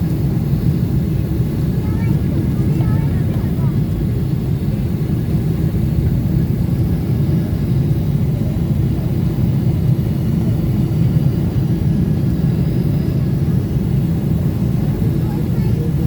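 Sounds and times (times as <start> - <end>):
airliner engines rumbling in cabin: 0.0 - 16.0.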